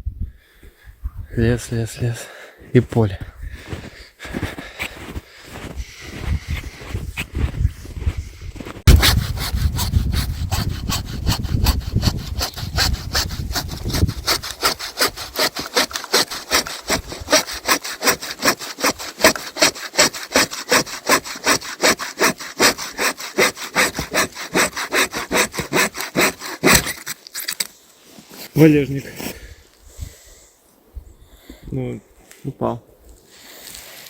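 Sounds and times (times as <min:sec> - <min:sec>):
hand saw cutting wood: 0:08.8 - 0:27.5.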